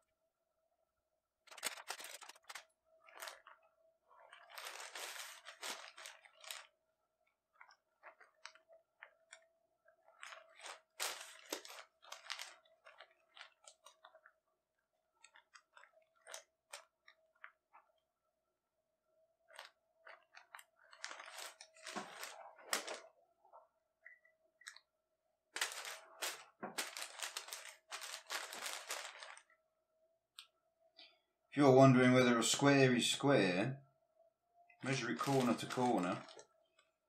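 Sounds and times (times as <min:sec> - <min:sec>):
newspaper crinkling and rustling: 0:01.4 - 0:14.4, 0:15.1 - 0:17.9, 0:19.5 - 0:23.2, 0:25.6 - 0:29.5, 0:34.8 - 0:36.5.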